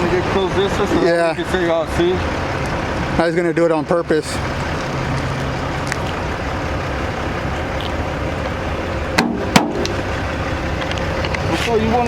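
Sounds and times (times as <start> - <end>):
truck engine rumbling: 0.0 - 12.0
sharp knocks: 9.2 - 10.0.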